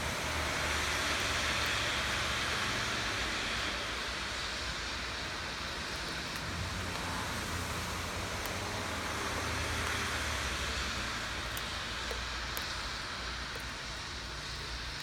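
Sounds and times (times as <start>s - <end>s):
steady rain hiss: 0.0s - 15.0s
single raindrop ticks: 6.3s - 15.0s.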